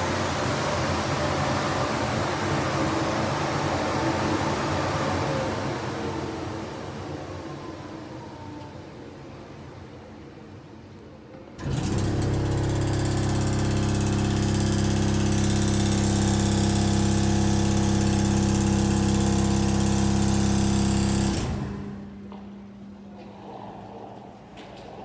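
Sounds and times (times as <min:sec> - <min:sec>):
industrial vacuum running: 0:00.0 - 0:07.9, 0:11.6 - 0:23.3.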